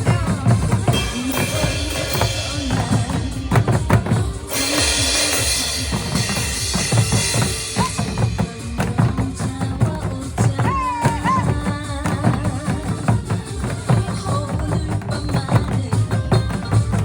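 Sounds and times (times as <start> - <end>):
drum-kit beat: 0.0 - 17.0
trot music: 0.0 - 17.0
crash cymbal wash: 0.9 - 9.3.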